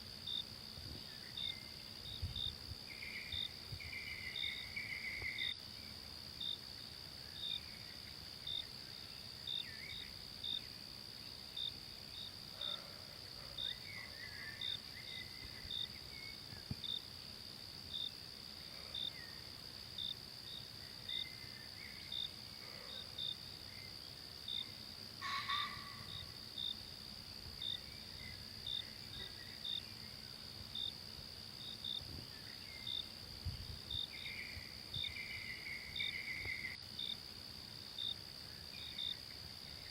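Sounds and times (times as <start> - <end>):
insects droning: 0.0 - 39.9
short high insect chirp: 1.0 - 6.6, 31.7 - 37.2.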